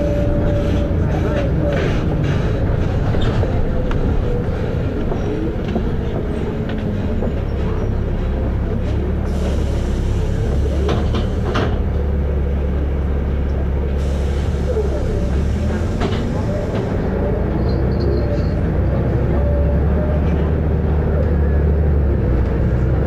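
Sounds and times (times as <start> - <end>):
bus body rattles: 0.0 - 23.0
bus diesel engine running: 0.0 - 23.0.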